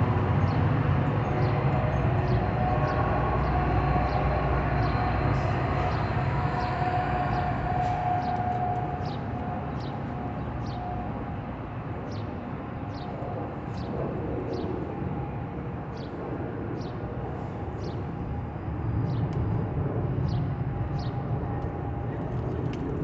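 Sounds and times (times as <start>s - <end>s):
train rumbling: 0.0s - 11.8s.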